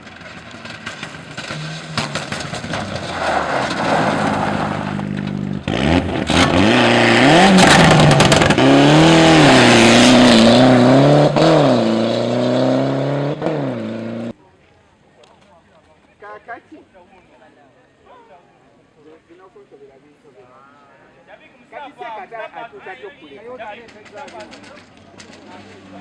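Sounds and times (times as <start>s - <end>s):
rally car engine passing: 0.0s - 14.3s, 23.9s - 26.0s.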